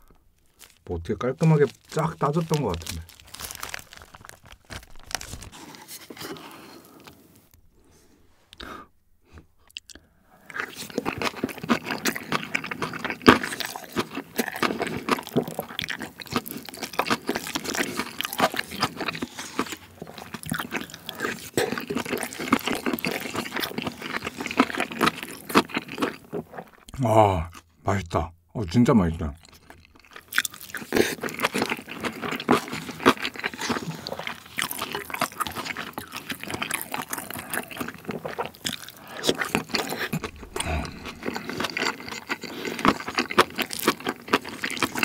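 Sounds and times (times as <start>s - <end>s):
chewing with crunches: 0.3s - 7.5s, 9.6s - 27.7s, 29.4s - 45.0s
plastic wrap rustling: 0.4s - 7.2s.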